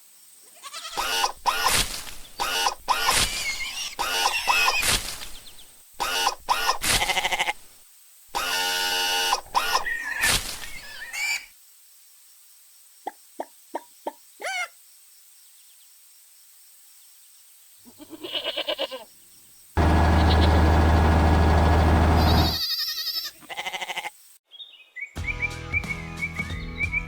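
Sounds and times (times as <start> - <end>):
loud low buzz: 1.0 - 4.8, 8.4 - 9.9, 19.8 - 22.6
chirpy warbling: 2.4 - 5.0, 9.4 - 11.5, 19.8 - 22.6.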